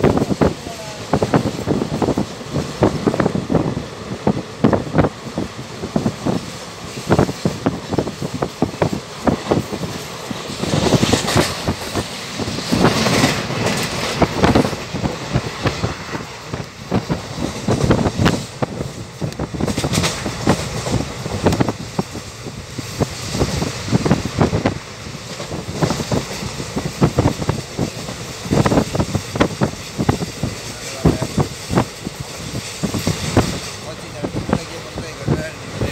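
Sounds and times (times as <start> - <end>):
train running noise: 0.0 - 35.9
wheels clacking over rail joints: 0.0 - 35.9.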